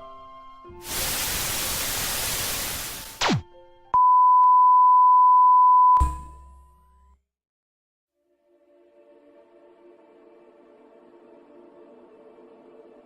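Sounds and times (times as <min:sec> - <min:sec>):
white noise hiss: 0:00.8 - 0:03.3
test tone beep: 0:04.0 - 0:06.0.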